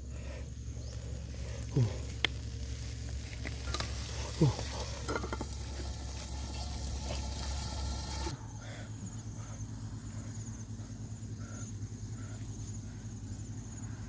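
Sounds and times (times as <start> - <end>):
food sizzling in a wok: 2.5 - 8.3.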